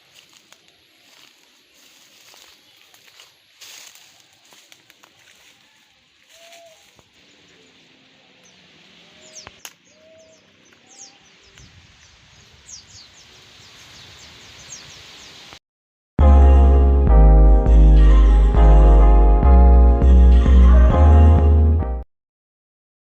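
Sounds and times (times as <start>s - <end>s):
low hooting bird calls: 3.8s - 11.6s
loud music: 16.2s - 22.0s.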